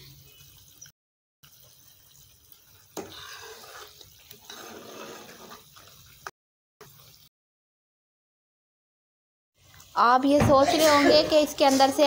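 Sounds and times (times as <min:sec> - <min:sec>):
cream sizzling and bubbling in pan: 0:00.0 - 0:07.3.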